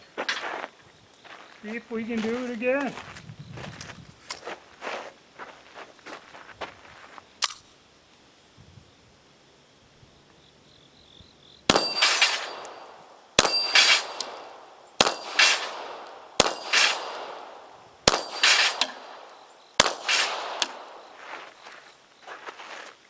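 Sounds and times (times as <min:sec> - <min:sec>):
bullet clanging on steel plate: 0:11.7 - 0:21.3
pistol shots: 0:11.7 - 0:21.5.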